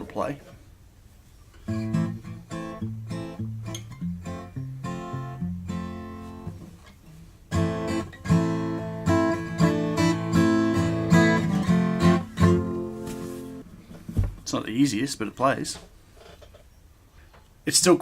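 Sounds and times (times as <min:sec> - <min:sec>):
acoustic guitar picked notes: 0:01.6 - 0:13.7
acoustic guitar strummed chords: 0:01.7 - 0:13.6.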